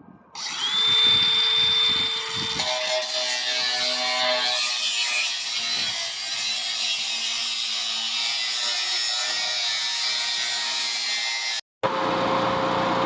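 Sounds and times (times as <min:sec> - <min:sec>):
electric grinder on metal pipe: 0:00.4 - 0:11.6.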